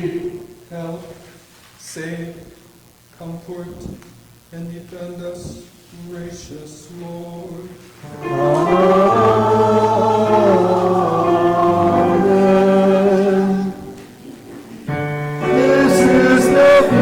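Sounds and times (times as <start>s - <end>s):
congregation singing: 0.0s - 1.4s, 5.1s - 17.0s.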